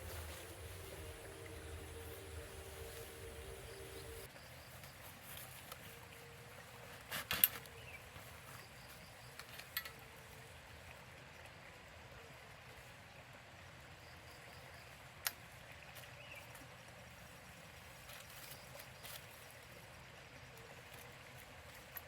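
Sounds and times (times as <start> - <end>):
faint insect calls: 0.0 - 10.4, 17.9 - 22.0.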